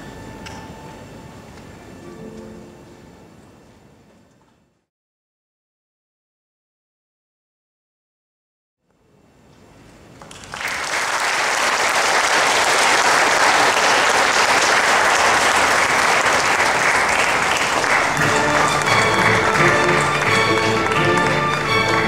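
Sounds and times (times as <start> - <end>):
applause: 10.1 - 22.0.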